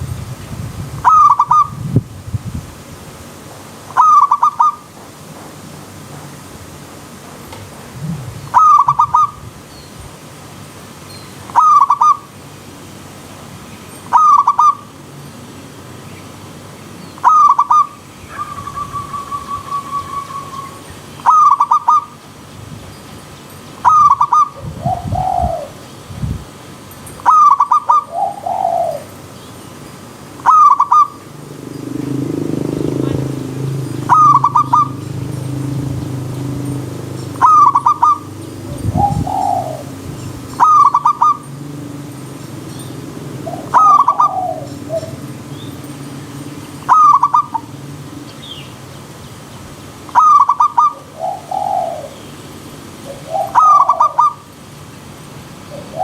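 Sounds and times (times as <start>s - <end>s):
flowing stream water hiss: 0.0s - 56.0s
doves cooing: 1.0s - 1.7s, 8.0s - 9.4s, 11.5s - 12.2s, 14.1s - 14.9s, 17.2s - 22.2s, 23.8s - 25.8s, 27.2s - 29.4s, 30.4s - 48.3s, 50.1s - 54.5s, 55.7s - 56.0s
bird trill: 1.0s - 1.8s, 4.0s - 4.9s, 8.5s - 10.0s, 11.1s - 12.3s, 13.8s - 15.0s, 17.0s - 22.2s, 23.0s - 25.9s, 26.9s - 48.9s, 50.0s - 54.5s.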